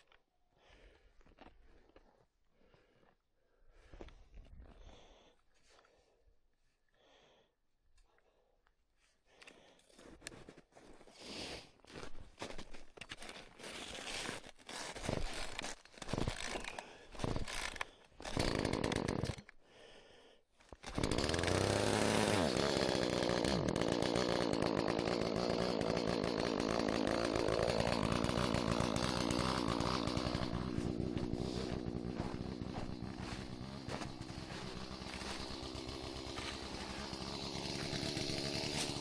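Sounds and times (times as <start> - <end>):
chainsaw pull-cord noises: 13.2 - 19.6, 20.6 - 39.0
chainsaw engine running: 14.8 - 19.6, 20.7 - 39.0.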